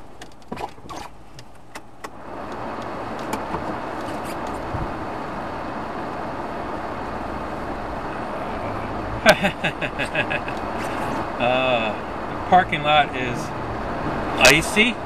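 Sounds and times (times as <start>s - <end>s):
clicks and knocks inside car: 0.0s - 5.0s
car engine running: 0.0s - 15.0s.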